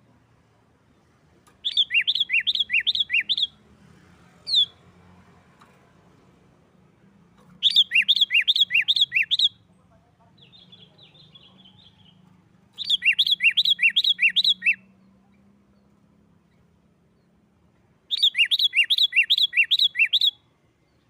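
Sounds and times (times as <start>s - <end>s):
bird chattering: 1.6s - 3.5s, 7.6s - 9.6s, 12.8s - 14.8s, 18.1s - 20.4s.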